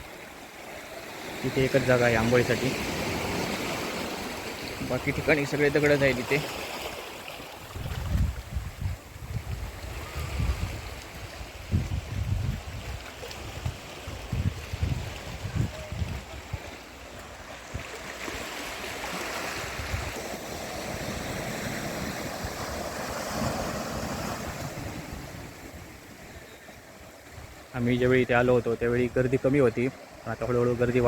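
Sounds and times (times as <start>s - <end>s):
sea waves on rocky shore: 0.0s - 31.0s
wind buffeting microphone: 7.7s - 16.8s, 19.6s - 20.3s.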